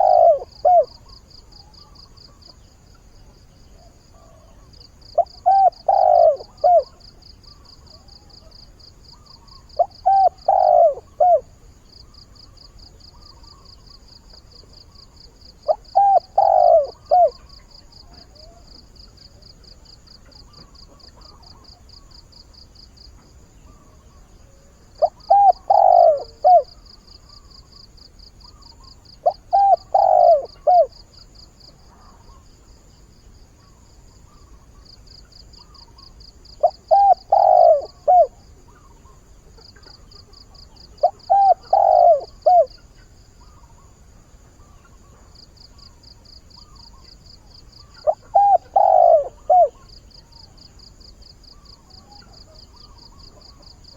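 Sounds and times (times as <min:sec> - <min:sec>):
dove cooing: 0:00.0 - 0:02.6, 0:03.8 - 0:11.6, 0:15.6 - 0:18.7, 0:23.7 - 0:27.8, 0:28.5 - 0:31.1, 0:36.6 - 0:43.8, 0:47.8 - 0:50.4.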